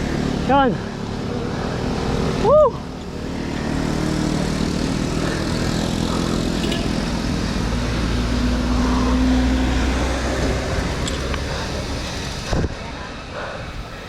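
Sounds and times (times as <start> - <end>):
road noise: 0.0 - 14.0
vehicle engine running: 3.0 - 13.3.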